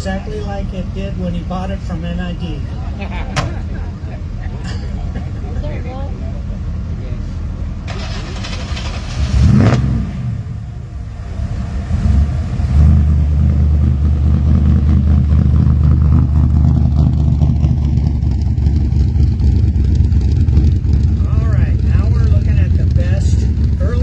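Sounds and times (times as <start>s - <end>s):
vehicle engine revving and running: 6.5s - 24.0s.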